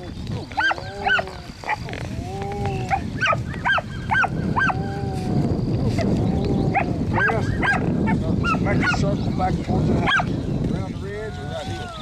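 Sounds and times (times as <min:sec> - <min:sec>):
puppies yipping: 0:00.5 - 0:01.9, 0:02.9 - 0:04.9, 0:06.7 - 0:09.1, 0:10.0 - 0:10.3
puppies whining: 0:00.5 - 0:05.0.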